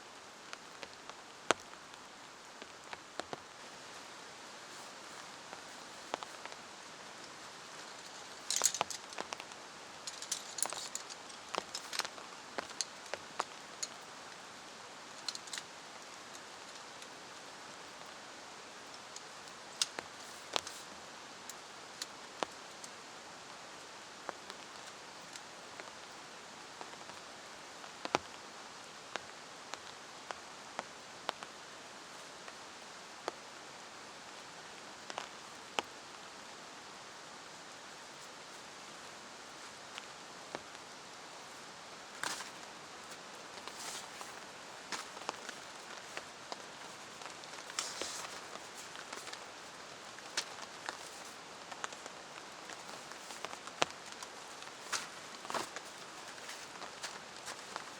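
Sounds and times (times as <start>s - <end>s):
rain falling: 0.0s - 57.9s
rustling and light clinks: 4.6s - 14.2s, 42.2s - 52.0s.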